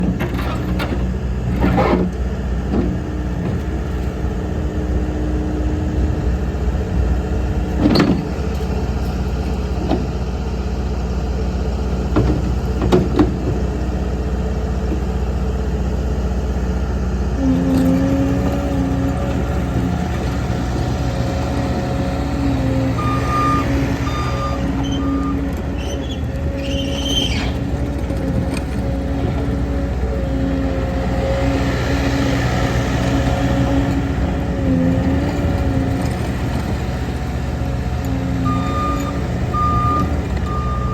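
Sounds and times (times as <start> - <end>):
diesel engine running: 0.0 - 40.9
backup alarm beeping: 23.0 - 25.4, 38.5 - 40.9
brief high squeal: 23.0 - 27.6.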